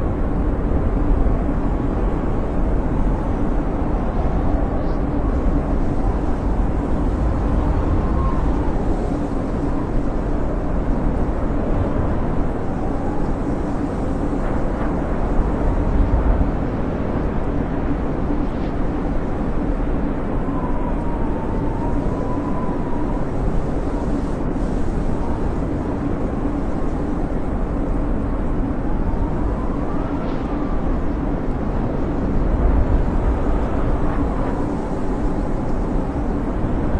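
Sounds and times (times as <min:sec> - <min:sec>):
wind howling: 0:00.0 - 0:36.9.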